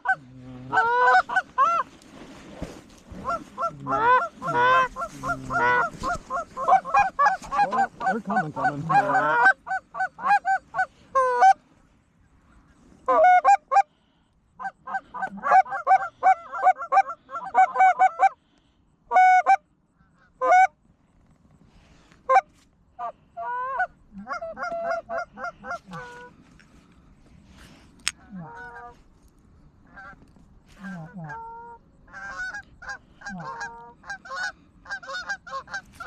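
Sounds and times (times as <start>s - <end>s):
geese honking: 0.0s - 2.0s, 3.1s - 11.6s, 13.0s - 13.9s, 14.6s - 18.5s, 19.1s - 20.7s, 22.2s - 26.4s, 28.2s - 29.0s, 29.9s - 36.0s.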